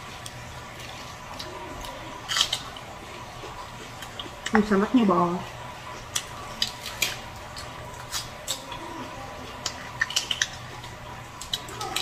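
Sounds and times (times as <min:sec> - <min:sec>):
chewing and wet mouth clicks: 0:00.2 - 0:04.6, 0:09.6 - 0:12.0
lettuce leaves crackling: 0:06.0 - 0:12.0.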